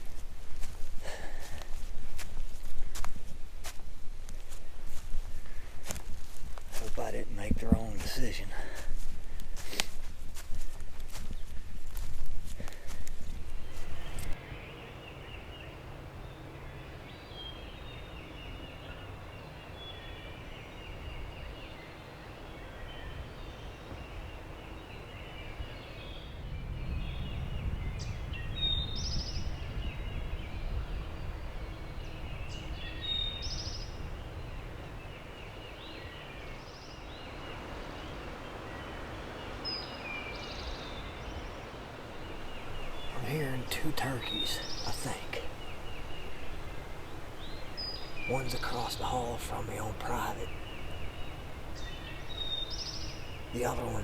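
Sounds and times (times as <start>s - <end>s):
songbirds chirping: 0.0s - 54.0s
wind noise: 16.0s - 54.0s.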